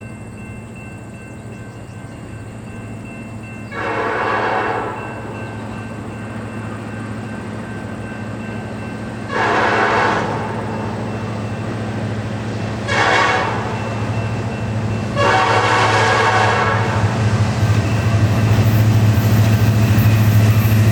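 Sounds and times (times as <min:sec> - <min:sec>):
diesel locomotive drone: 0:00.0 - 0:20.9
locomotive air horn blasts: 0:03.7 - 0:05.2, 0:09.3 - 0:10.7, 0:12.8 - 0:13.8, 0:15.2 - 0:17.2.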